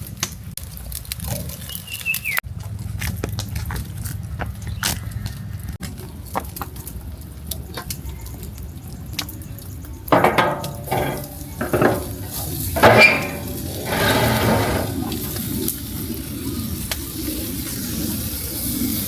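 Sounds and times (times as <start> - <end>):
dishes clinking: 10.1 - 15.2
pots scraping and clattering: 10.1 - 15.4.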